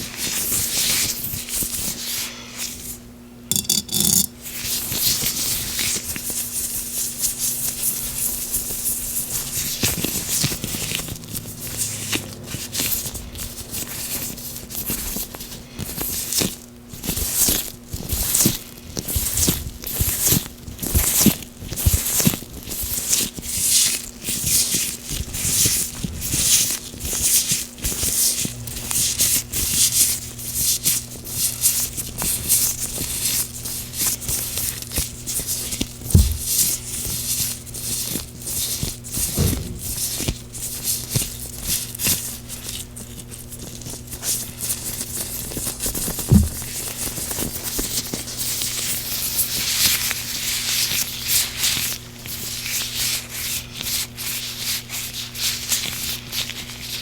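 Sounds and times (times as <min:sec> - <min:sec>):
gloved hands rubbing with oil: 0:04.6 - 0:16.4.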